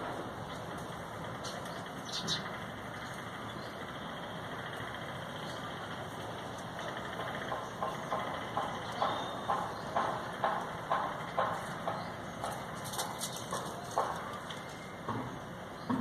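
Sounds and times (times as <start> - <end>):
distant traffic hum: 0.0 - 16.0
bird chirps: 1.4 - 4.4, 7.3 - 12.8.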